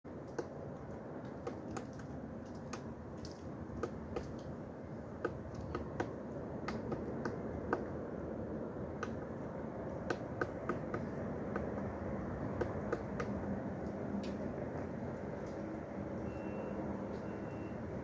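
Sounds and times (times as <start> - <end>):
woodpecker pecking at wood: 5.2 - 7.9, 10.0 - 11.8.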